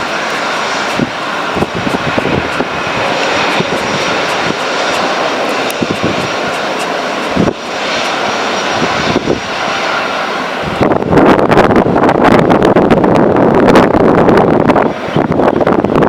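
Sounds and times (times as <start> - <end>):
jet engines running: 0.0 - 13.4.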